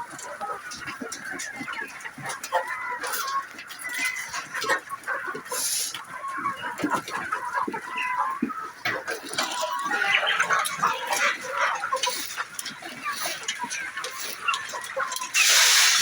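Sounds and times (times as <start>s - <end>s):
poultry calling: 0.0s - 16.0s.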